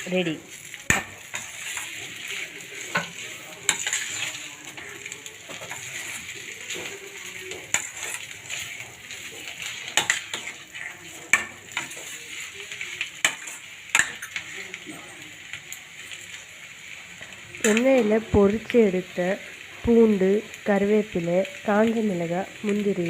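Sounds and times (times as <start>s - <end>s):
chicken sizzling in a pan: 0.0s - 23.0s
metal spatula clinking on pan: 3.7s - 4.9s, 7.6s - 8.3s, 9.9s - 10.6s, 13.2s - 14.4s.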